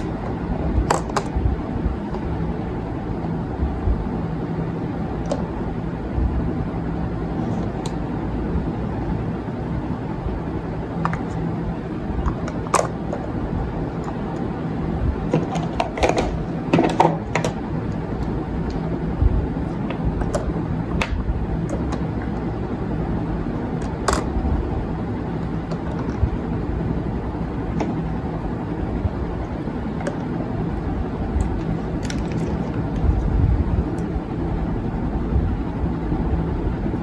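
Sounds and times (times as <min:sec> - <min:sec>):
low background rumble: 0:00.0 - 0:37.0
objects clicking and knocking: 0:11.0 - 0:11.4, 0:12.2 - 0:13.3, 0:15.3 - 0:18.8, 0:23.8 - 0:24.4, 0:31.4 - 0:33.3.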